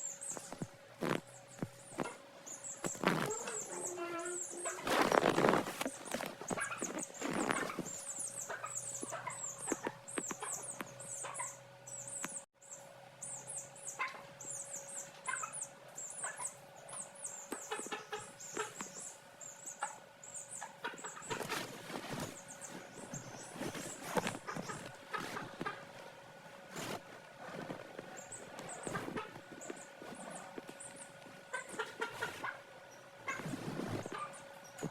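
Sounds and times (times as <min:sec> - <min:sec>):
chicks peeping: 0:00.1 - 0:12.4, 0:13.3 - 0:26.0, 0:26.8 - 0:34.9.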